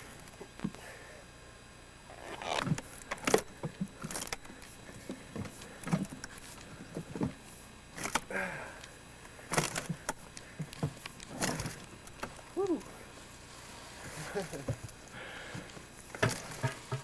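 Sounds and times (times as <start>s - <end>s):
faint voice: 12.6s - 13.0s.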